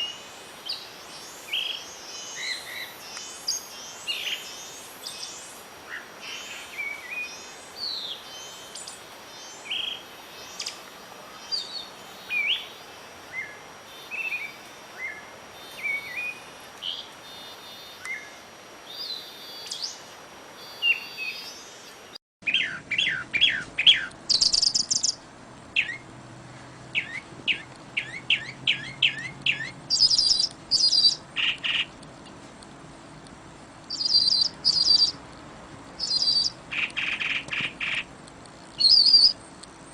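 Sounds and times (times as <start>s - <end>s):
faint background hiss: 0.0s - 39.9s
songbirds singing: 0.0s - 39.9s
birds trilling: 22.4s - 25.2s, 25.8s - 26.1s, 26.8s - 32.0s, 33.9s - 35.2s, 36.0s - 38.1s, 38.8s - 39.4s.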